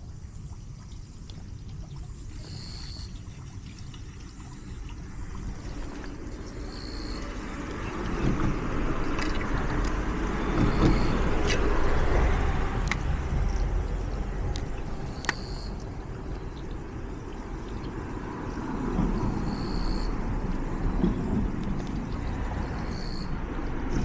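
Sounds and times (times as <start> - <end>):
sharp clicks: 9.1 - 13.2, 14.4 - 15.9.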